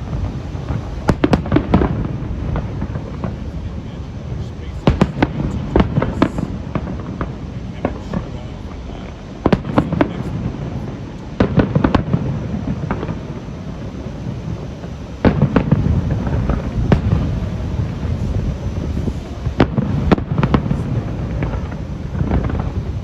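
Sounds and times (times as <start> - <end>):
firework crackles: 0.0 - 23.0
firework shells bursting: 0.0 - 23.0
low rumble of booms: 0.0 - 23.0.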